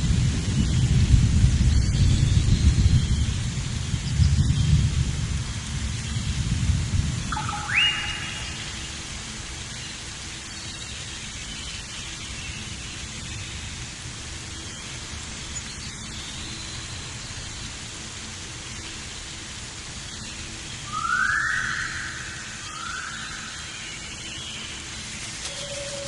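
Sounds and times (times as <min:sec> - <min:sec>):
thunder rumbling: 0:00.0 - 0:09.2
steady rain: 0:00.0 - 0:26.0.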